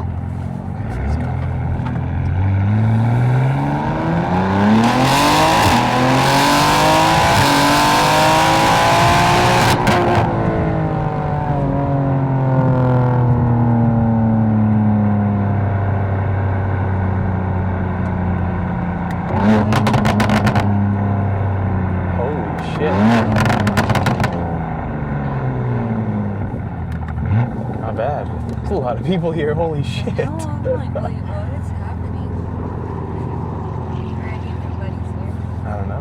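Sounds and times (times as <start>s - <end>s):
car engine accelerating: 0.0s - 36.0s
exhaust crackles: 0.0s - 36.0s.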